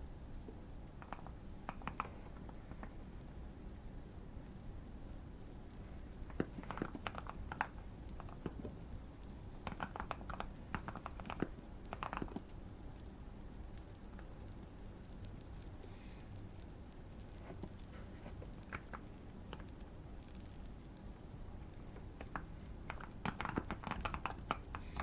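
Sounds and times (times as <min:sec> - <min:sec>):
faint fire crackling: 0:00.0 - 0:25.0
mechanical keyboard typing: 0:09.7 - 0:12.5, 0:22.2 - 0:25.0.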